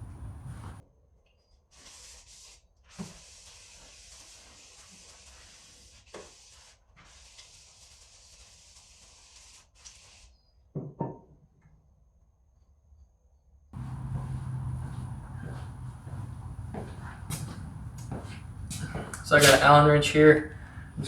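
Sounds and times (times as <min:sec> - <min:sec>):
knocks: 0:13.8 - 0:21.0
pressurised spray hissing: 0:13.8 - 0:21.0.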